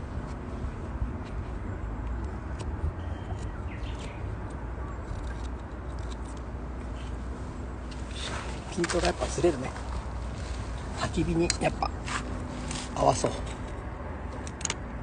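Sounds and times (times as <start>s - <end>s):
bird chirp: 2.9s - 5.4s.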